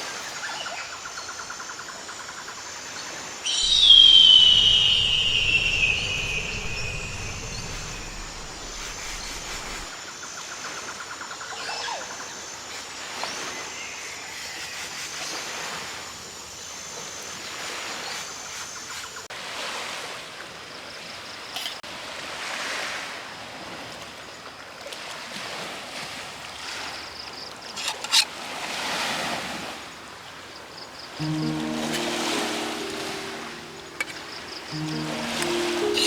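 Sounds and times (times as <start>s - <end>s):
high repeating chirp: 3.6s - 9.9s
small waves washing onto shore: 21.9s - 30.5s, 31.2s - 36.0s.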